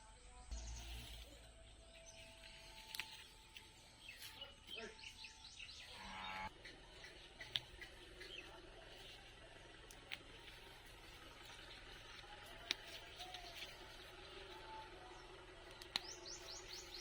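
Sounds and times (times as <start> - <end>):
birds chirping: 0.0 - 17.0
small clicks: 6.9 - 14.9, 15.6 - 17.0.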